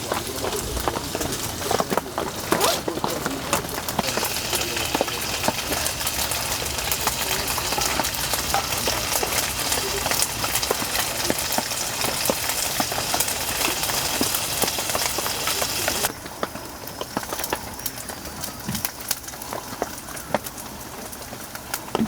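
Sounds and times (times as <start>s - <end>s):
food sizzling in a hot pan: 4.0s - 21.7s.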